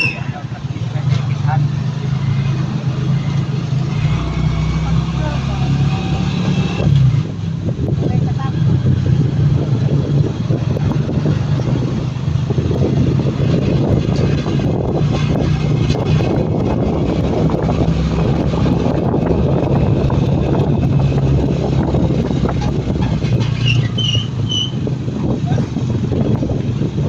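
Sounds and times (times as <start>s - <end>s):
motorcycle engine running: 0.0s - 27.0s
road and wind noise: 0.0s - 27.0s.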